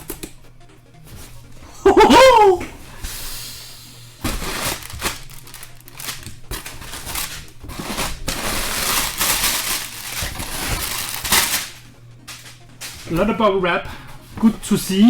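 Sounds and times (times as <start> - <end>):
bubble wrap rustling and crackling: 3.9 - 14.8.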